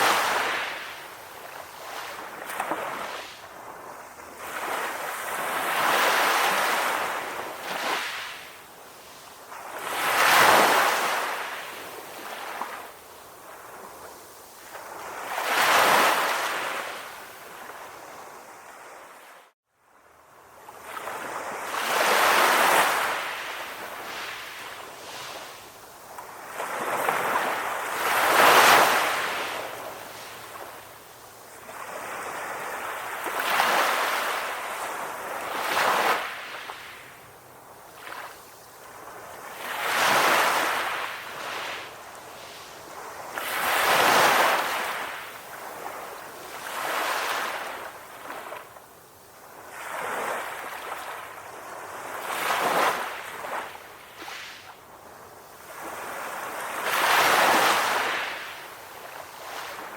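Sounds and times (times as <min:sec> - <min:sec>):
sea waves washing onto shore: 0:20.8 - 0:59.9.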